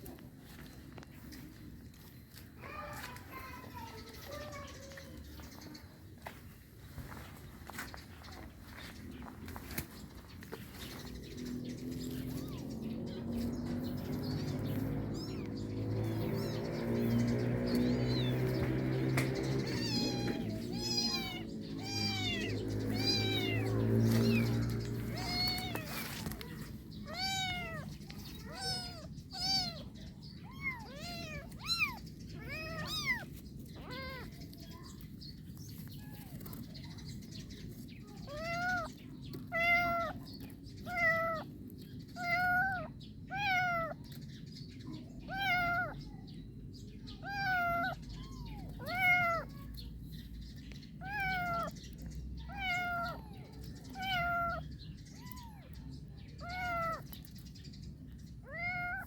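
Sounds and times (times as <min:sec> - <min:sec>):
kitten meowing: 0:14.8 - 0:15.5, 0:17.8 - 0:26.2, 0:27.0 - 0:34.3, 0:38.3 - 0:38.9, 0:39.5 - 0:41.5, 0:42.2 - 0:44.0, 0:45.3 - 0:46.0, 0:47.2 - 0:49.6, 0:51.0 - 0:51.8, 0:52.4 - 0:55.7, 0:56.4 - 0:57.2, 0:58.4 - 0:59.0.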